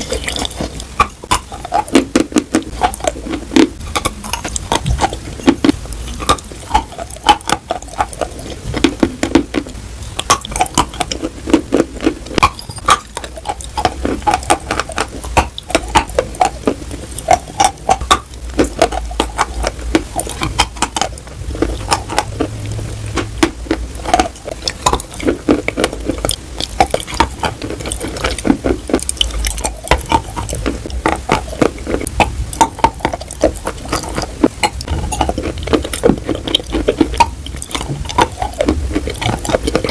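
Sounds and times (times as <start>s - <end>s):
chalk being chewed: 0.0s - 39.9s.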